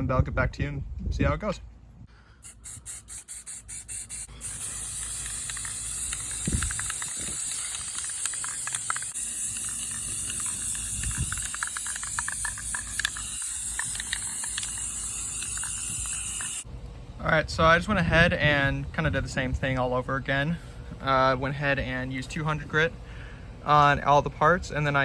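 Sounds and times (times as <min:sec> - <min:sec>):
spray can hissing: 0:02.4 - 0:16.7
spray can rattling clicks: 0:02.5 - 0:16.6.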